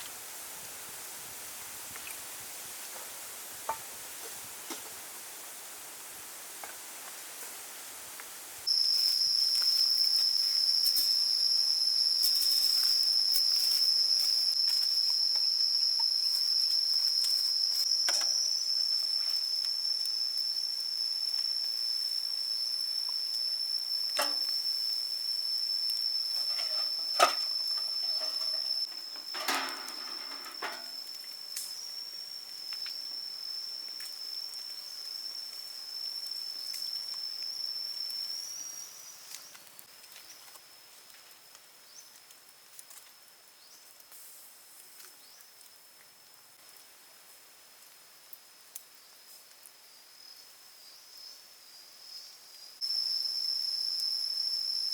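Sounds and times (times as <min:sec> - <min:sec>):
high-pitched insect drone: 0:08.6 - 0:39.7, 0:50.3 - 0:54.9.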